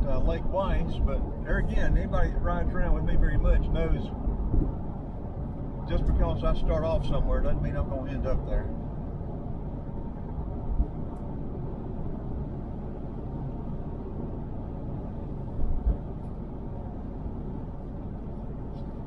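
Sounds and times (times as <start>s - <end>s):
car cabin road noise: 0.0s - 19.0s
short low thumps: 4.3s - 5.0s.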